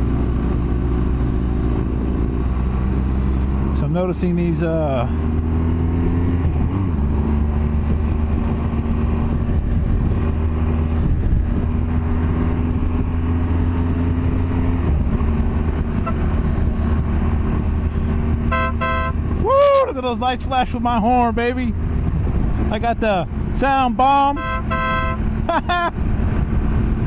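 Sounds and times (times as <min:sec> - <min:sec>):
motorcycle engine cruising: 0:00.0 - 0:27.0
wind noise: 0:05.1 - 0:27.0.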